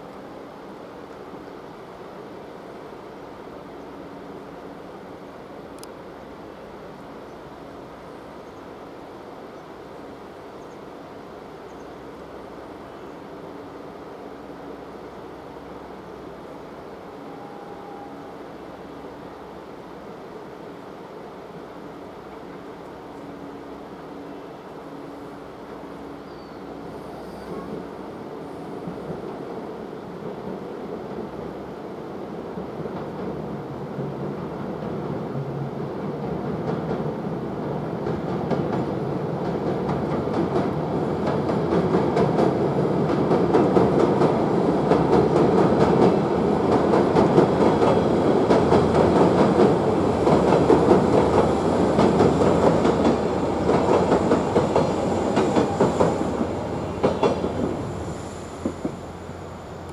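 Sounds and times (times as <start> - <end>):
train rumbling over a bridge: 0.0 - 59.9
wheels clickety-clack: 38.0 - 57.9.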